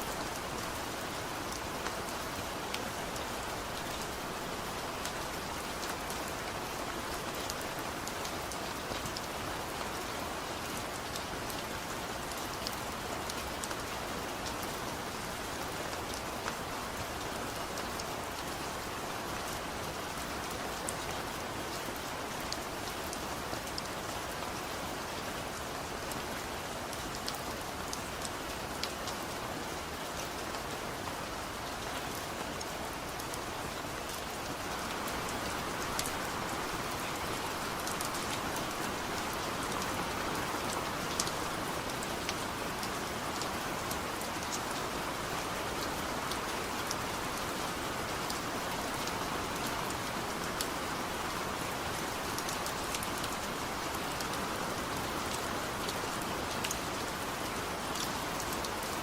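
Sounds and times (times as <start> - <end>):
heavy rain falling: 0.0 - 59.0
raindrops pattering on surface: 0.0 - 59.0.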